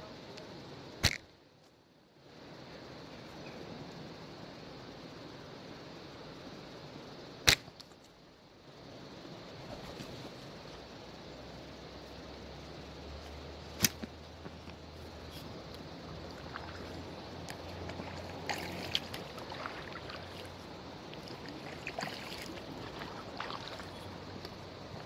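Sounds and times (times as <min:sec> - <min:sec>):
running river water: 0:14.8 - 0:25.0
paddle splashing water: 0:16.2 - 0:25.0.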